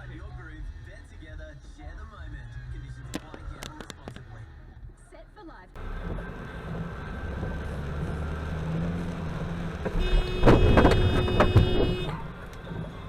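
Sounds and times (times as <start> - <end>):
car engine and road noise: 0.0 - 13.0
loud knocks and bangs: 9.9 - 12.1.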